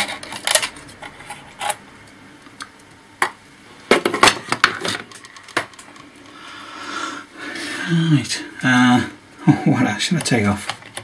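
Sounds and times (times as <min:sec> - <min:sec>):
parts clattering: 0:03.2 - 0:06.1.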